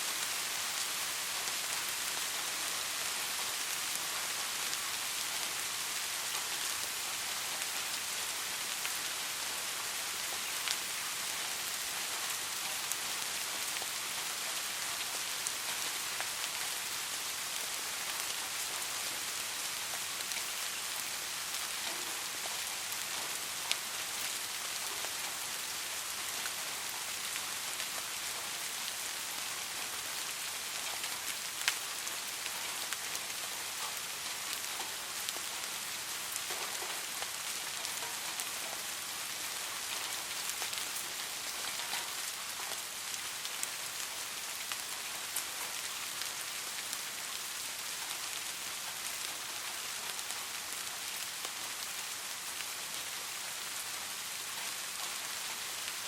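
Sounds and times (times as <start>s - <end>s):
soft steady rain: 0.0s - 56.0s.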